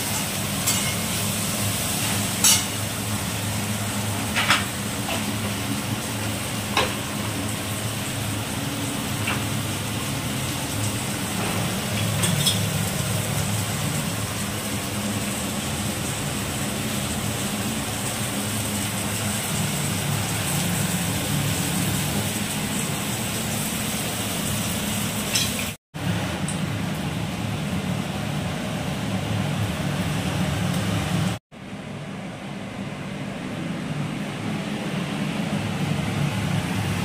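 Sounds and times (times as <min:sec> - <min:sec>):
chicken sizzling in pan: 0:00.0 - 0:25.8.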